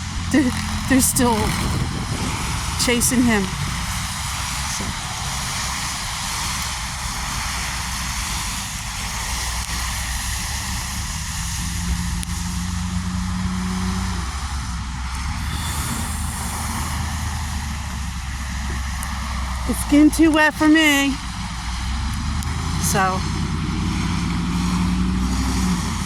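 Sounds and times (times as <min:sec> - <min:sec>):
vehicle engines and road noise: 0:00.0 - 0:26.0
steady low tone: 0:14.0 - 0:26.0
broad hiss: 0:14.7 - 0:19.6.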